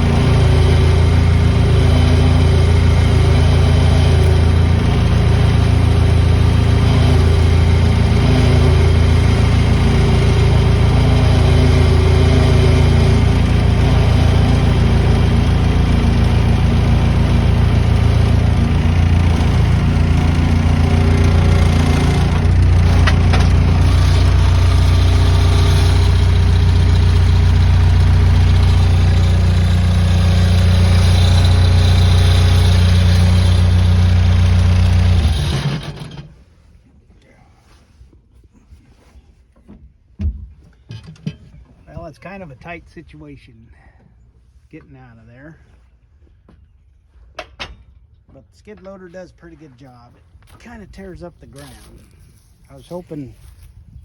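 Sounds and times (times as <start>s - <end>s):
skid loader engine running: 0.0s - 36.5s.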